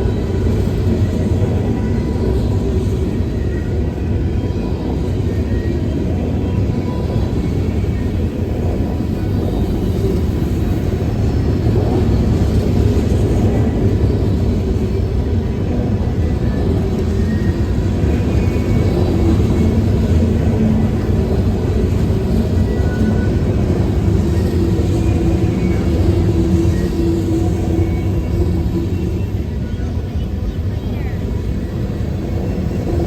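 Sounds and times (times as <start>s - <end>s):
freight train rumbling by: 0.0s - 33.0s.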